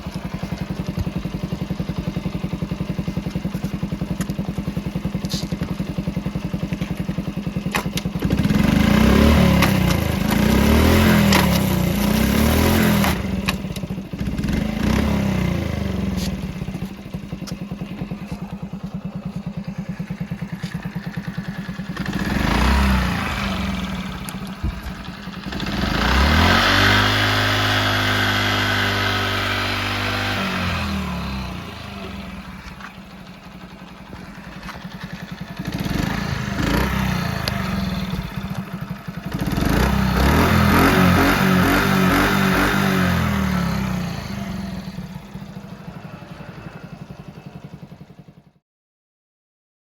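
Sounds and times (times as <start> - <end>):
small motorcycle engine idling: 0.0 - 48.6.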